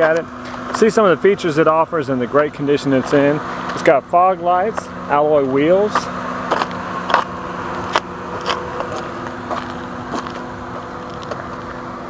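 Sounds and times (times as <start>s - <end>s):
car engine idling: 0.0s - 12.0s
footsteps on pavement: 4.6s - 5.0s, 5.6s - 12.0s.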